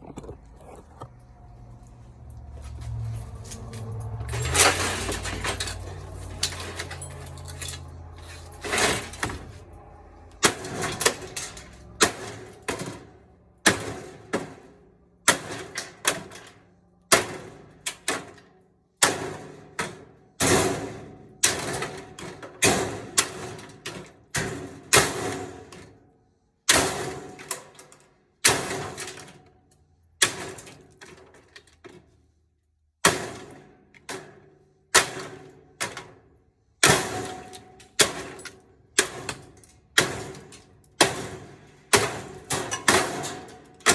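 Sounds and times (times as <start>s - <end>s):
sharp metal clanks: 3.1s - 14.2s.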